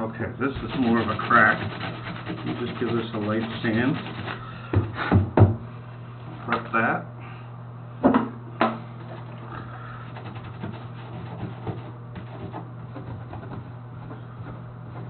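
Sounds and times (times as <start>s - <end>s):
sandpaper rubbing on plastic: 0.5s - 4.4s, 10.0s - 15.0s.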